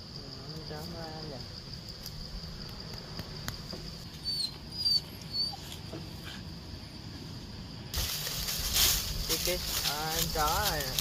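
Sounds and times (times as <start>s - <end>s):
dog whimpering: 4.3s - 5.8s.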